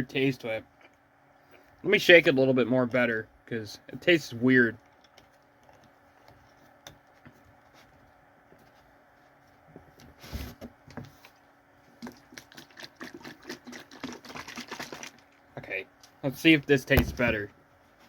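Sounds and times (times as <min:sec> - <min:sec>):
bottle being shaken: 0:12.3 - 0:15.3.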